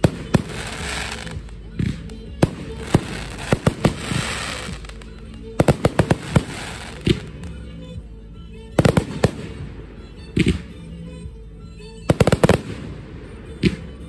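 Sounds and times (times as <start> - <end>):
firework hissing crackle: 0.0 - 1.5, 2.6 - 7.3
music playing: 0.0 - 14.0.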